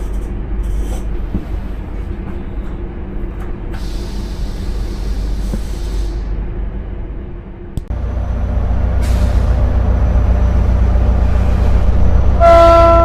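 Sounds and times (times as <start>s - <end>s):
train rumbling: 0.0s - 13.0s
hiss of air: 3.7s - 6.4s, 9.0s - 9.7s
train horn: 12.4s - 13.0s.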